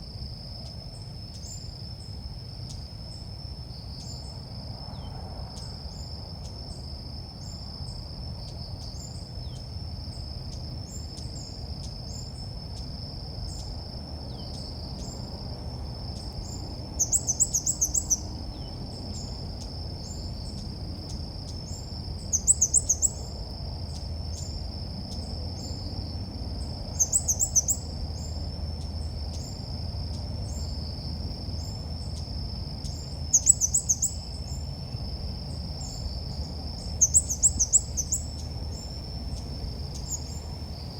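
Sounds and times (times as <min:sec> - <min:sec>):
high insect-like trill: 0:00.0 - 0:40.9
rapid high bird chirps: 0:16.2 - 0:19.3, 0:21.7 - 0:23.3, 0:26.9 - 0:29.6, 0:32.8 - 0:34.9, 0:36.8 - 0:40.9
soft chirps: 0:16.2 - 0:25.9, 0:26.9 - 0:35.0, 0:35.8 - 0:40.9.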